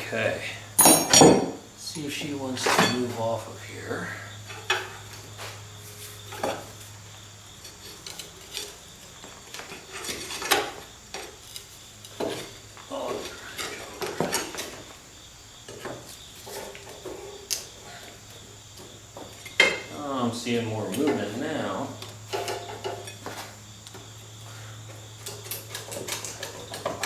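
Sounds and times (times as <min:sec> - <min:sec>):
tools clinking on metal: 0:00.8 - 0:01.6.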